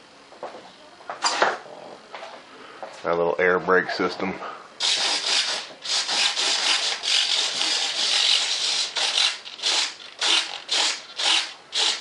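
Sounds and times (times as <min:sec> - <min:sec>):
hand sanding: 0:04.8 - 0:12.0.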